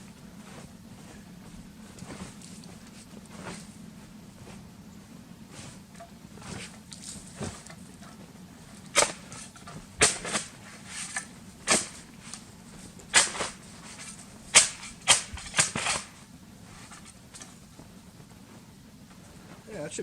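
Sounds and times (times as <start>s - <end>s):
boots crunching in snow: 0.3s - 4.7s.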